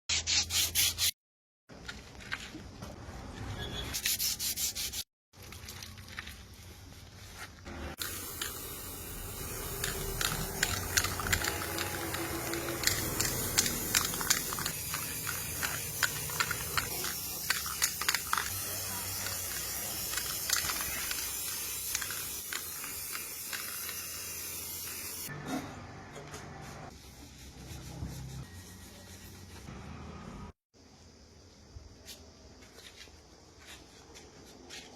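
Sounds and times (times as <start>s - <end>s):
aerosol spray hiss: 8.0s - 25.3s.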